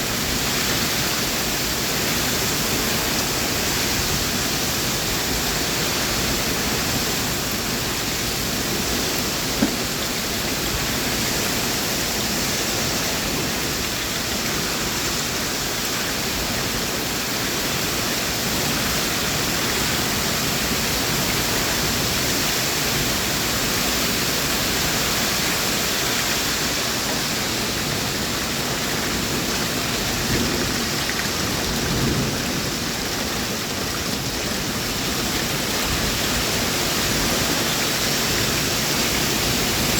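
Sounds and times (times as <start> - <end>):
heavy rain falling: 0.0 - 39.9
short sharp knock: 9.6 - 9.8.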